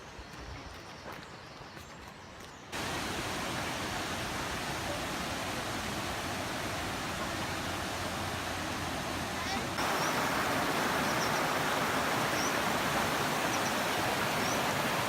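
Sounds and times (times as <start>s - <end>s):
waterfall rushing: 2.8s - 15.0s.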